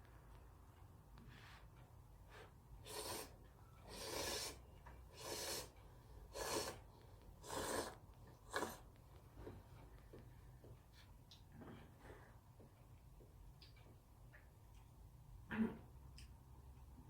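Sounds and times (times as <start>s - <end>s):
slurping noodles: 2.8s - 8.9s.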